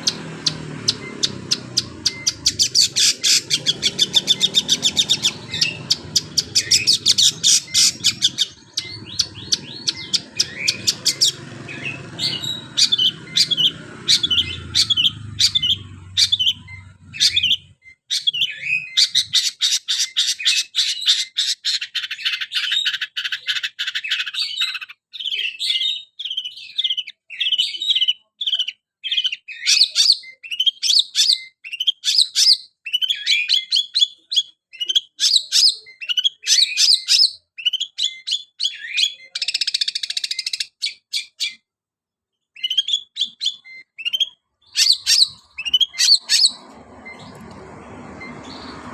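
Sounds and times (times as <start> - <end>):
low background rumble: 0.0 - 17.7
bird singing rapid high chirps: 0.0 - 41.6, 42.4 - 48.9.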